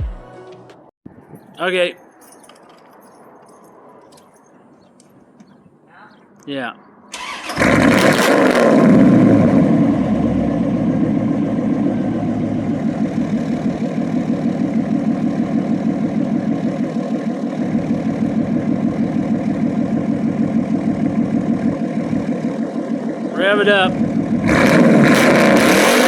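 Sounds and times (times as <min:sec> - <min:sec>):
loud car engine starting and idling: 0:07.1 - 0:26.0.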